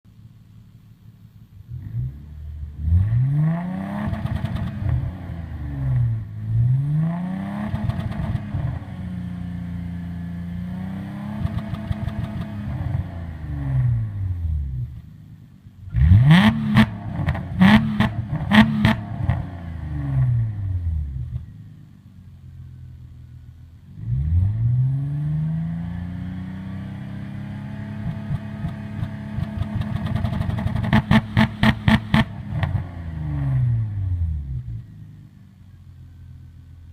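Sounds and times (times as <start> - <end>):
car engine revving: 1.6 - 15.1, 15.8 - 21.5, 23.8 - 35.3
exhaust cracks: 28.0 - 32.9.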